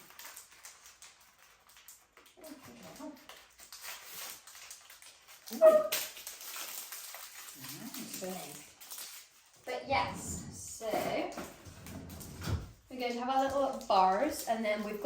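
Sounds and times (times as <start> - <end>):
dog yipping: 5.5 - 6.0.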